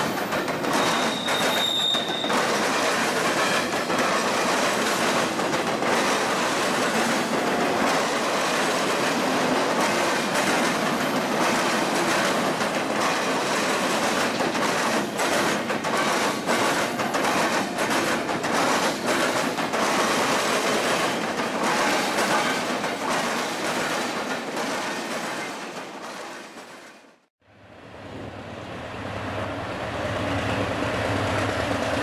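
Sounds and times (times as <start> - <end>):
freight train rolling past: 0.0 - 32.0
high-pitched wheel squeal: 0.7 - 2.4.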